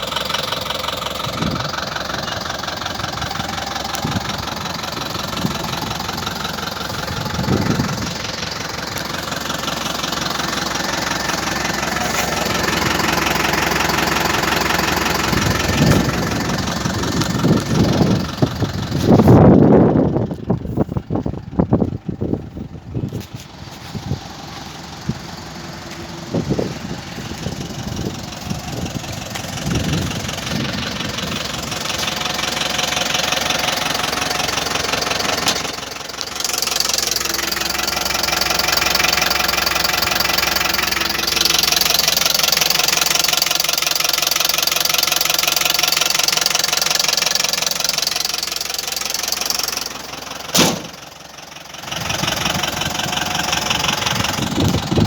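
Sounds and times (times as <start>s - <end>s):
diesel engine idling: 0.0s - 55.0s
sharp knock: 50.6s - 51.0s.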